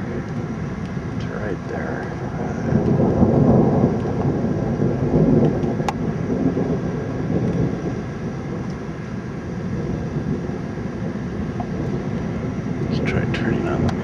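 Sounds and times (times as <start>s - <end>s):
rolling thunder: 0.0s - 14.0s.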